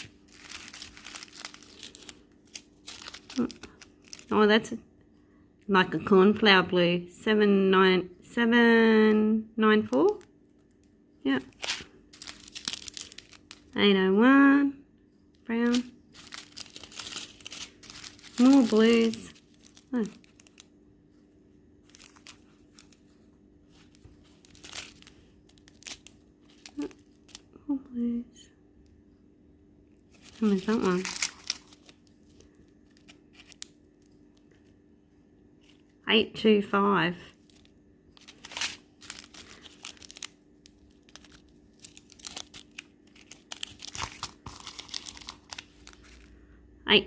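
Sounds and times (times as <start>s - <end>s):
plastic packets crinkling: 0.0s - 4.5s, 10.0s - 13.8s, 15.6s - 20.8s, 21.8s - 27.6s, 30.1s - 34.7s, 37.3s - 46.5s
faint steady hum: 0.0s - 47.0s.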